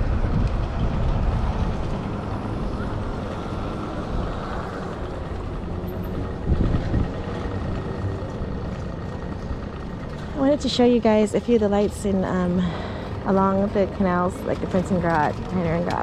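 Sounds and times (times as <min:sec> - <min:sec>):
wind rumbling on microphone: 0:00.0 - 0:08.2
city traffic noise: 0:00.0 - 0:16.0.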